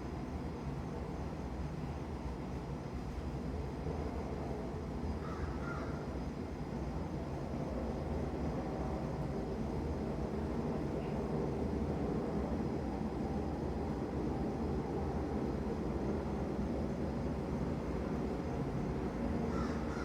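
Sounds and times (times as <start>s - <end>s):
crows cawing: 5.2s - 6.0s, 19.5s - 20.0s.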